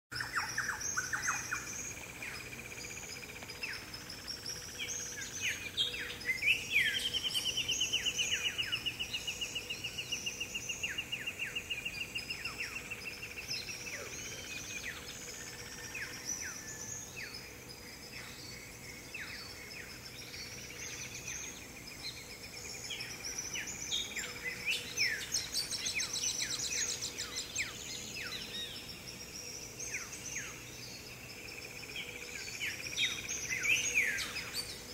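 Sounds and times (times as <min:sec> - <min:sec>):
birds calling and chirping: 0:00.1 - 0:34.9.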